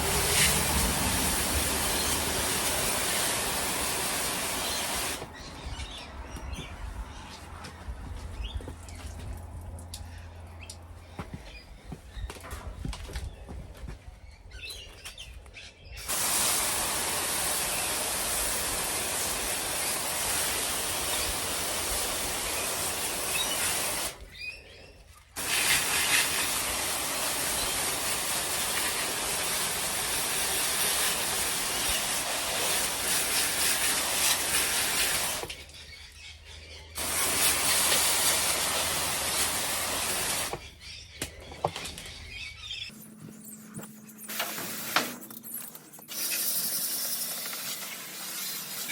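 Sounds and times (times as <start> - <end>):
water spraying hiss: 0.0 - 6.0, 16.0 - 24.4, 25.4 - 35.9, 37.0 - 40.7, 46.1 - 48.9.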